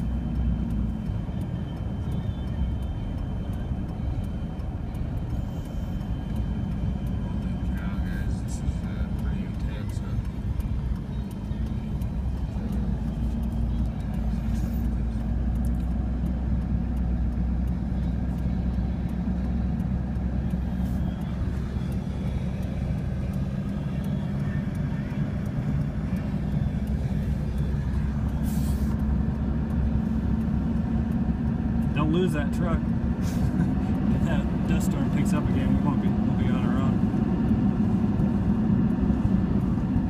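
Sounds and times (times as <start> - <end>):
vehicle engine and road hum: 0.0 - 40.0
brief hiss: 28.4 - 29.0.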